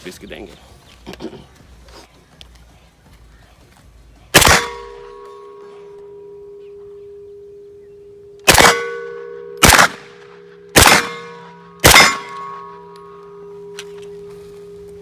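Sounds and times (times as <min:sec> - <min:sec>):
pistol shots with metallic ringing: 0:04.3 - 0:14.2.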